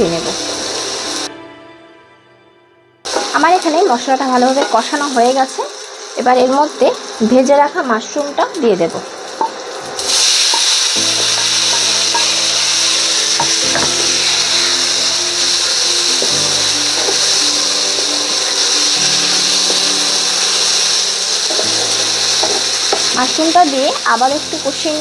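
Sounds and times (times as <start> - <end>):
food sizzling in oil: 0.0 - 1.3, 3.1 - 25.0
background music with held chords: 0.0 - 3.8, 10.2 - 25.0
spatula scraping pan: 10.0 - 23.2.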